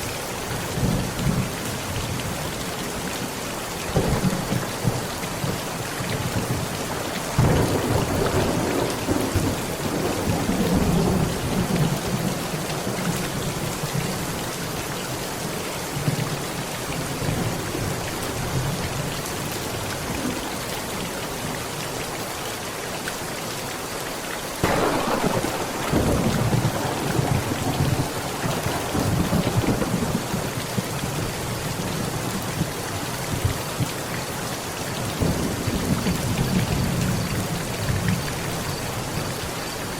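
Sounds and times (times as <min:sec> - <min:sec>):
heavy rain on a tent: 0:00.0 - 0:39.9
thunder rolling: 0:07.3 - 0:12.3, 0:24.6 - 0:31.3.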